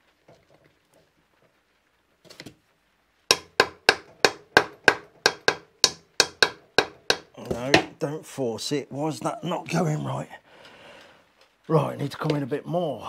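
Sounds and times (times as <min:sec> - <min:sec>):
hammer tapping: 0:03.3 - 0:08.0.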